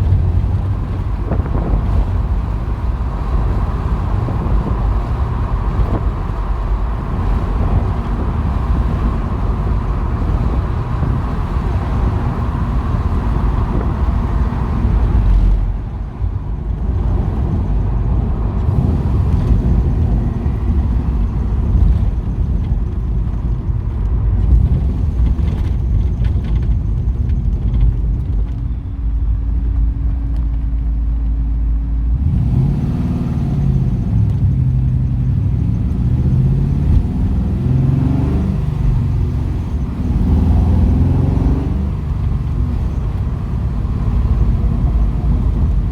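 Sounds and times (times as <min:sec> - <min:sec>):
car engine revving: 0:00.0 - 0:16.0, 0:16.8 - 0:23.4, 0:32.1 - 0:45.9
wind noise: 0:00.0 - 0:45.9.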